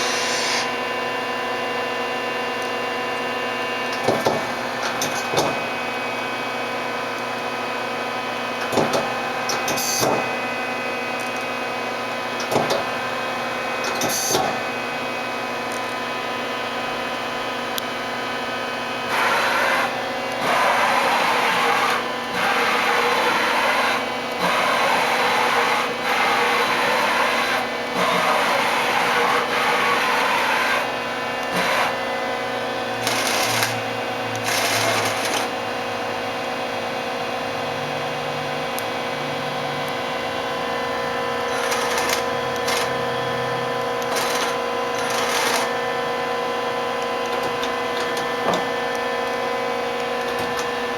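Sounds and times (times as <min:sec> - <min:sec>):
noisy machine bursts: 0:00.0 - 0:01.1, 0:19.0 - 0:32.0, 0:32.8 - 0:35.6, 0:40.9 - 0:46.0
machine whine: 0:00.0 - 0:50.9.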